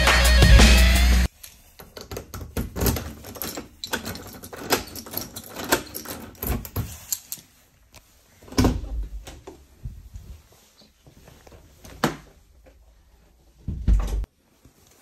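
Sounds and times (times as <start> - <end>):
key working a metal door lock: 1.9 - 6.8.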